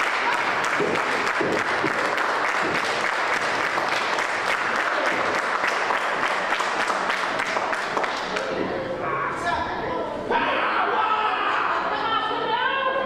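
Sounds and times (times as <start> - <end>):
crowd applauding: 0.0 - 8.5
people shouting: 10.3 - 13.0.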